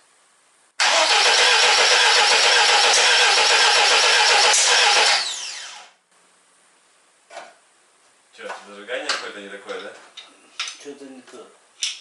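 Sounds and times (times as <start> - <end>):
starter motor cranking engine: 0.8 - 5.9
starter whine spinning down: 0.8 - 6.0.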